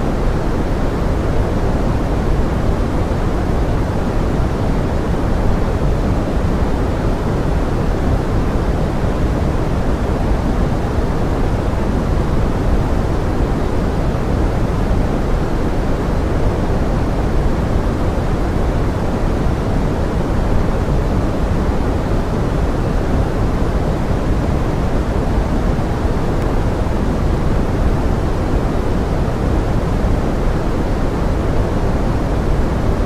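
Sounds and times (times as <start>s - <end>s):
steady rain-like hiss: 0.0s - 33.0s.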